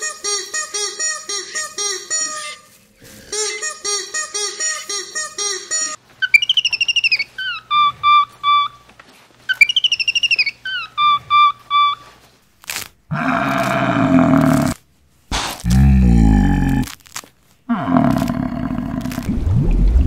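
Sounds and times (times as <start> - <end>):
high warbling whistled call: 6.2 - 8.8, 9.5 - 12.1.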